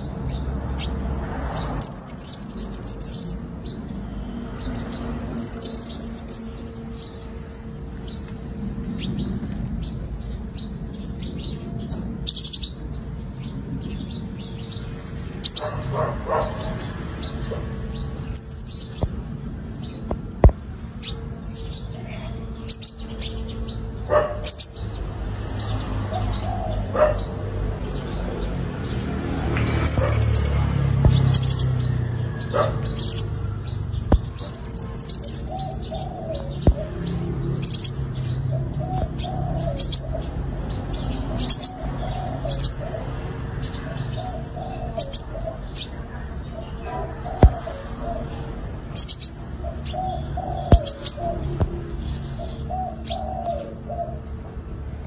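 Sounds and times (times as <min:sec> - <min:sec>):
bird singing high trills: 0:05.3 - 0:09.4, 0:18.0 - 0:20.0, 0:46.6 - 0:53.9.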